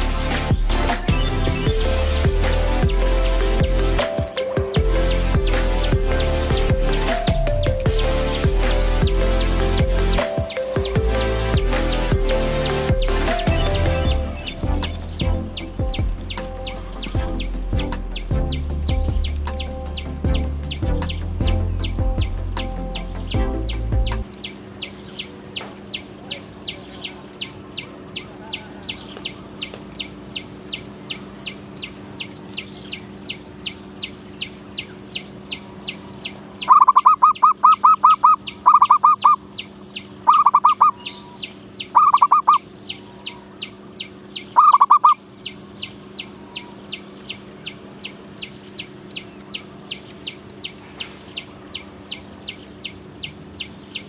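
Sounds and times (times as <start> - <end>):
steady high chirp: 0.0 - 54.0
dove cooing: 25.2 - 29.9, 36.6 - 39.4, 40.3 - 41.4, 42.0 - 43.6, 44.6 - 45.2.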